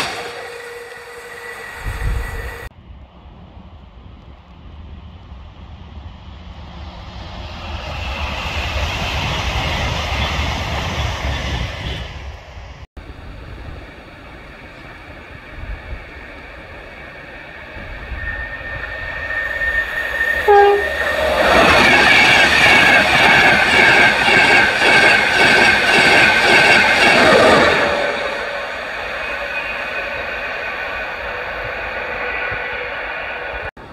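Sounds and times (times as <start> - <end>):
train passing at speed: 0.0 - 33.9
train horn blast: 20.4 - 21.3.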